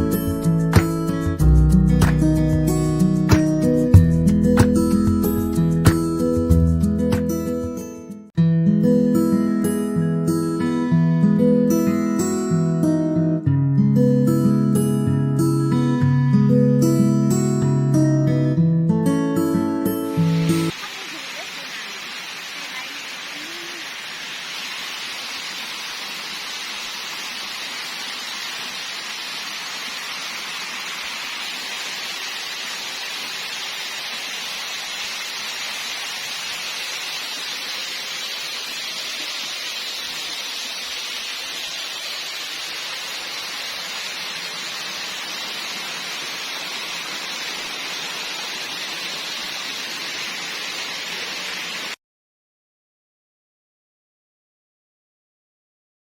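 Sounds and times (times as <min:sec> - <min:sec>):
steady hiss of water: 0:20.2 - 0:52.0.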